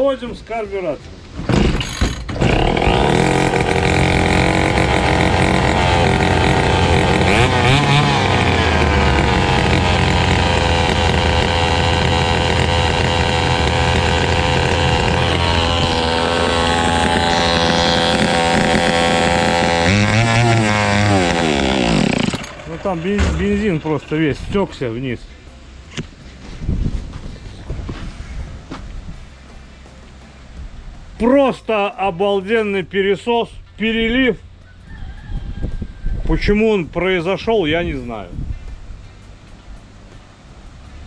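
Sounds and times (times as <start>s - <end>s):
trimmer engine pull-started and running: 1.8s - 24.5s.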